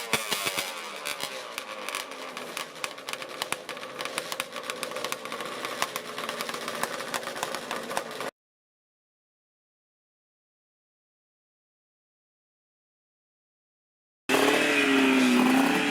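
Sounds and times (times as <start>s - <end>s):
crackling engine pops: 0.0s - 8.3s
two-stroke motorcycle idling: 0.0s - 8.3s, 14.3s - 15.9s.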